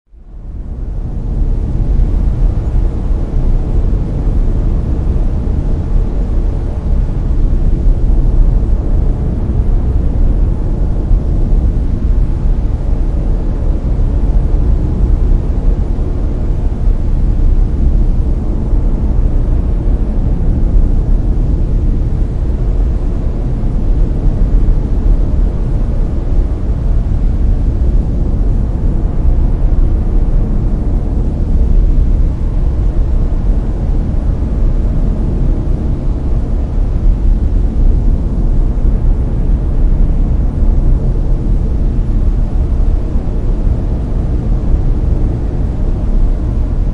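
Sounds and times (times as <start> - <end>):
brown noise: 0.1 - 46.9.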